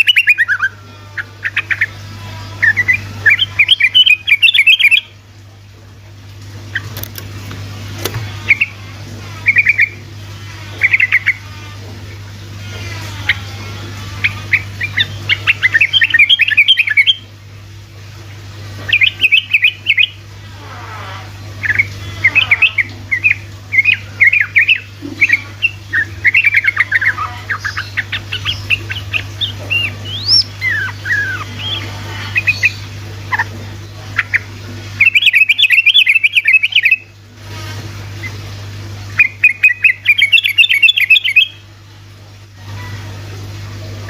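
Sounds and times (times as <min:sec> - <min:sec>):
bird chattering song: 0:00.0 - 0:00.7, 0:02.6 - 0:05.1, 0:18.9 - 0:20.2, 0:21.6 - 0:33.5, 0:34.2 - 0:37.1, 0:39.2 - 0:41.6
steady low hum: 0:00.0 - 0:44.0.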